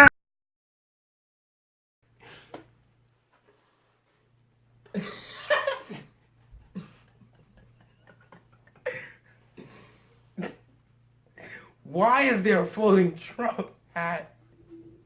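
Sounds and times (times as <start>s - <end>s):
faint low hum: 2.8s - 15.0s.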